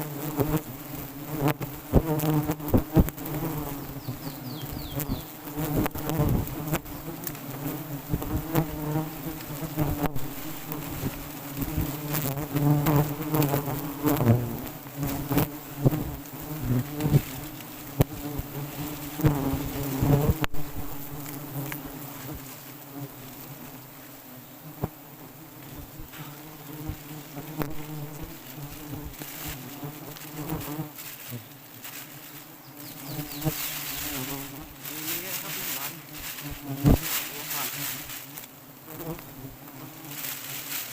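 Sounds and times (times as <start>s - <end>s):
bees buzzing: 0.0s - 40.9s
knocks and rustles: 33.4s - 38.5s.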